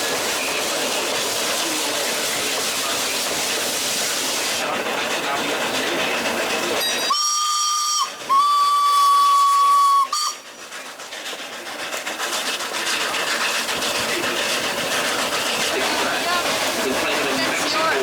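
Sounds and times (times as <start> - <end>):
moving train hissing and rushing: 0.0 - 18.0
steam locomotive whistle: 6.8 - 10.5.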